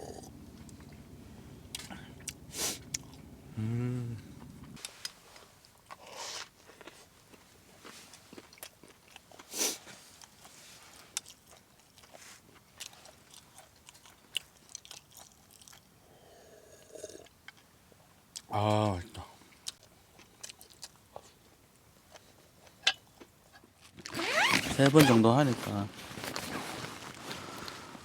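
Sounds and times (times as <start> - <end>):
person chewing: 1.7 - 9.5, 10.2 - 15.9, 19.6 - 21.3.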